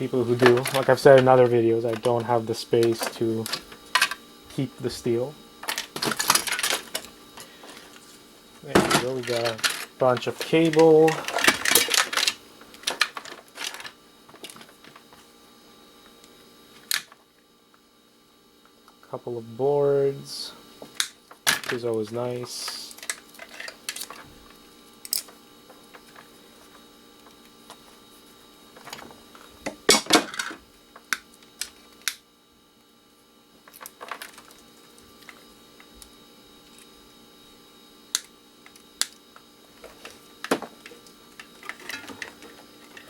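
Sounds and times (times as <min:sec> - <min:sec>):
electronic parts clattering: 0:00.0 - 0:15.2, 0:20.9 - 0:28.0, 0:28.7 - 0:32.1, 0:33.6 - 0:36.0, 0:38.7 - 0:43.0.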